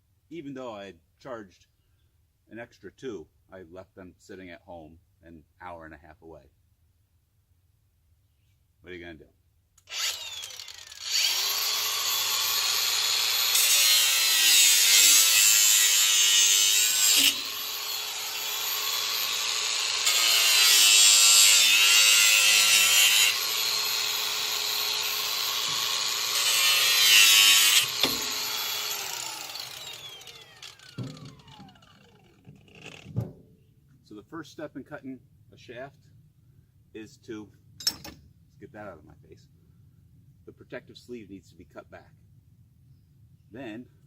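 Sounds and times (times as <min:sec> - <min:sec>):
angle grinder cutting metal: 0:09.9 - 0:33.0.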